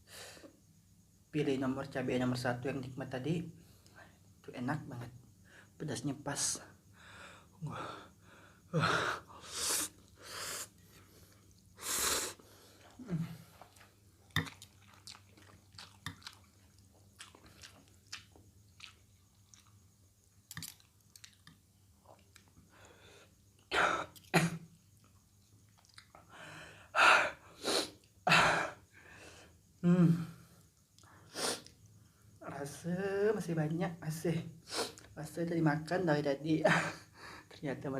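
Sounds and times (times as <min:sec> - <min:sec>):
person chewing noodles: 0:09.8 - 0:22.6, 0:25.0 - 0:26.3
wet mouth clicks: 0:14.3 - 0:16.5
person coughing: 0:23.7 - 0:24.6.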